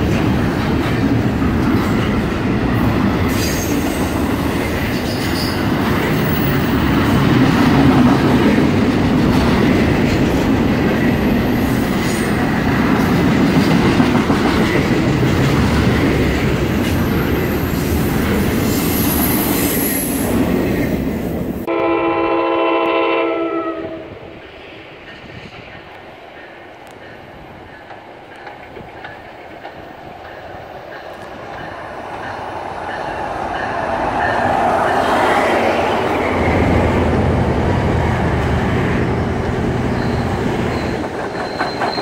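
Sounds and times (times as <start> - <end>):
train horn chord: 21.7 - 24.1
freight train wheels clattering: 25.0 - 36.9, 38.2 - 42.0.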